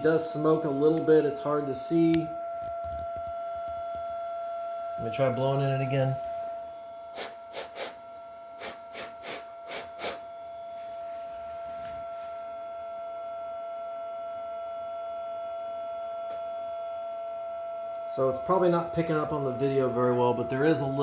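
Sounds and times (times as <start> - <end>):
fan motor whine: 0.0 - 21.0
short puffs of breath: 7.2 - 8.0, 8.6 - 10.2.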